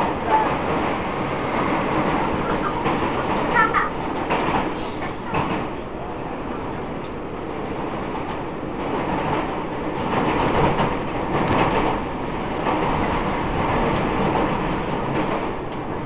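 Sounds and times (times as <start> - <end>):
train rumbling from inside: 0.0 - 16.0.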